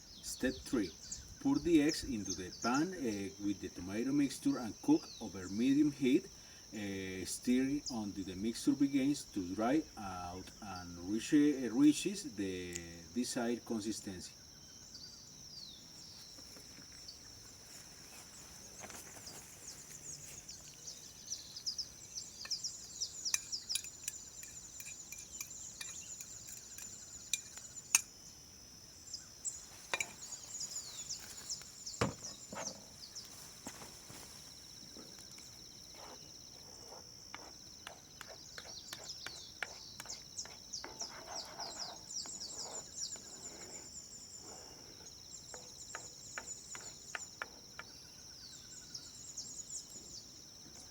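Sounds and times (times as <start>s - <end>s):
falling bird chirps: 14.6s - 35.5s
high-pitched insect drone: 21.4s - 28.4s.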